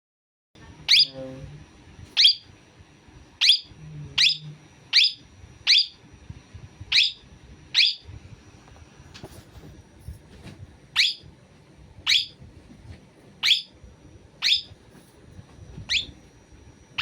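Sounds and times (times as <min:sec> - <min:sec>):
pet bird shrill calls: 0:02.2 - 0:02.4, 0:05.0 - 0:06.0, 0:06.9 - 0:07.2, 0:07.8 - 0:08.0, 0:11.0 - 0:11.2, 0:12.1 - 0:12.3, 0:13.4 - 0:13.7, 0:14.4 - 0:14.7, 0:15.9 - 0:16.1.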